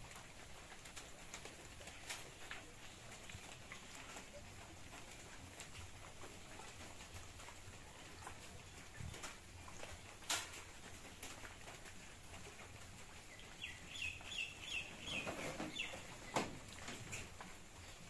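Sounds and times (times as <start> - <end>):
bird chirping: 13.3 - 16.4.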